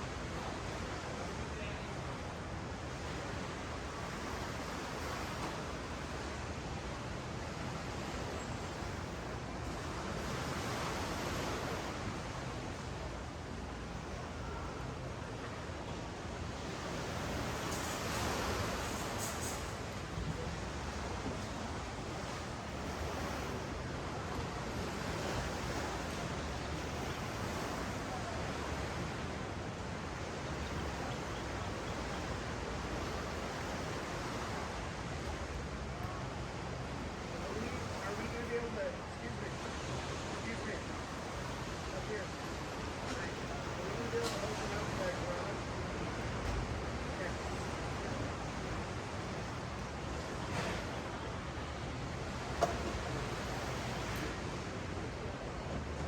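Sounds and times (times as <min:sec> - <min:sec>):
ocean waves washing on beach: 0:00.0 - 0:56.0.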